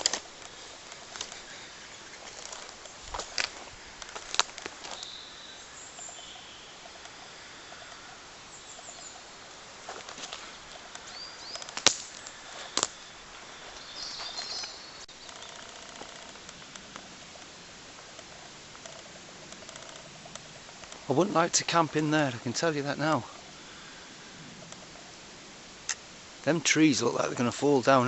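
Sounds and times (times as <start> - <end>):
footsteps in woodland: 0.0 - 26.1
small birds chirping: 0.0 - 26.2
sharp snaps or clicks: 11.0 - 13.0.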